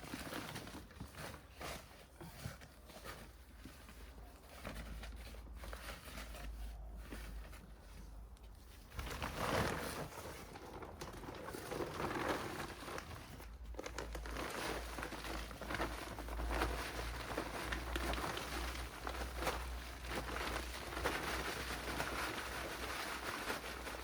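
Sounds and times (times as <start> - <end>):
garden bag crinkling and rustling: 0.0 - 24.0.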